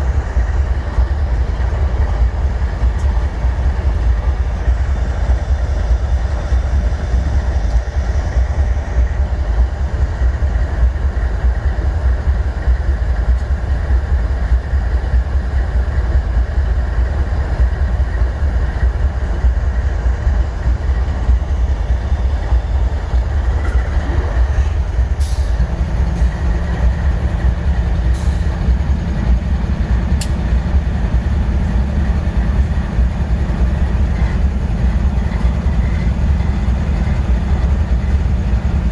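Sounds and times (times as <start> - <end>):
diesel locomotive engine rumbling: 0.0 - 38.9.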